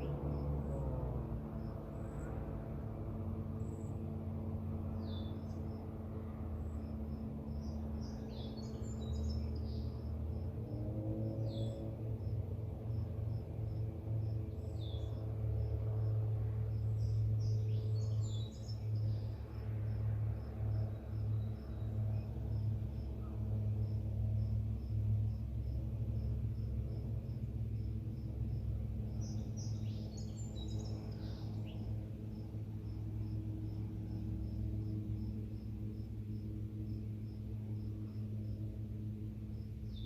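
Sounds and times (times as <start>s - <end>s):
low rumble: 0.0s - 40.0s
bird singing: 5.0s - 5.6s, 6.6s - 10.5s, 16.8s - 19.3s, 29.0s - 32.4s
cricket chirping: 6.6s - 40.0s.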